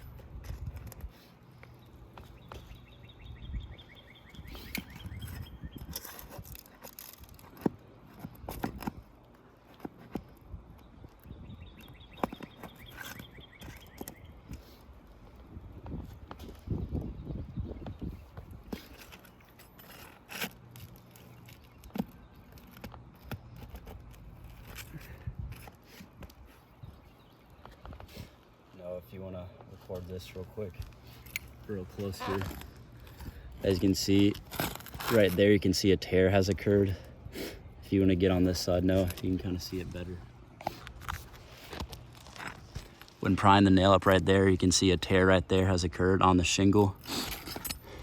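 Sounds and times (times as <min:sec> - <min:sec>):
wind rumbling on microphone: 0:00.0 - 0:01.2, 0:02.8 - 0:06.6, 0:10.2 - 0:12.2, 0:13.3 - 0:19.0, 0:24.9 - 0:28.3
pry bar scraping roof shingles: 0:04.3 - 0:10.5, 0:18.3 - 0:26.8, 0:29.6 - 0:37.1.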